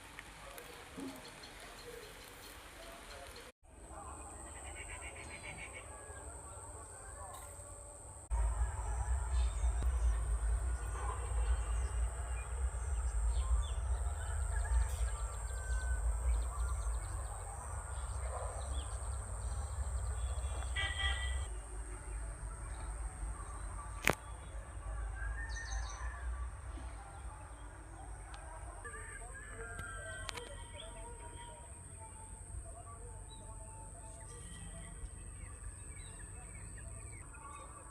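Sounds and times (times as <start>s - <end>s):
birds chirping: 8.3s - 21.5s
high-pitched whine: 8.3s - 21.5s
low rumble: 8.3s - 21.5s.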